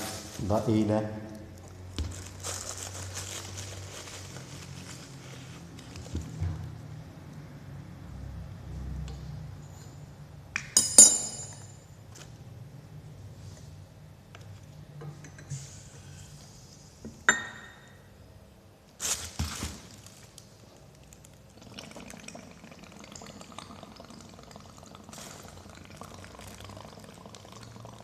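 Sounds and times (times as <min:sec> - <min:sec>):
glass clink: 0:10.6 - 0:11.9, 0:17.3 - 0:18.0
gas bubbling through liquid: 0:21.1 - 0:28.0.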